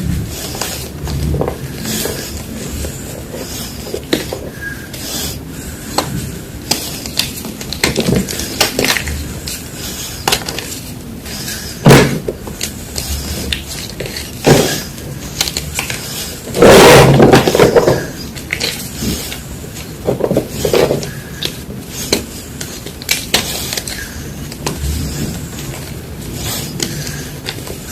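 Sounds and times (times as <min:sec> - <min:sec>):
chalk blocks crushed: 0:06.0 - 0:09.6, 0:11.8 - 0:19.4, 0:20.1 - 0:25.9.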